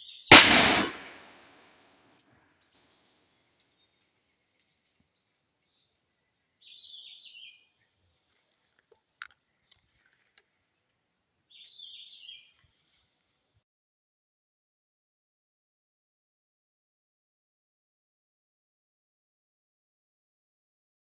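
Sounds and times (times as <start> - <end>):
faint forest ambience: 2.6 - 13.6
bird chirping: 3.7 - 8.0, 11.5 - 13.6.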